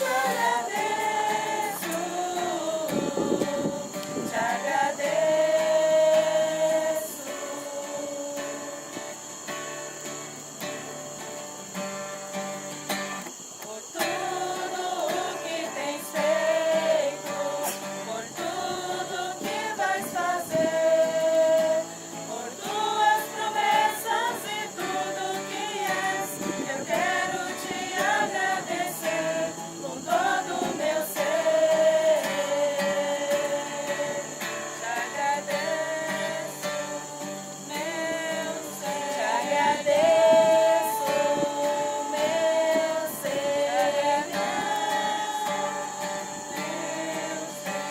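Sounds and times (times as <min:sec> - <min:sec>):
group singing a hymn: 0:00.0 - 0:11.8, 0:12.4 - 0:47.9
acoustic guitar: 0:00.0 - 0:47.9.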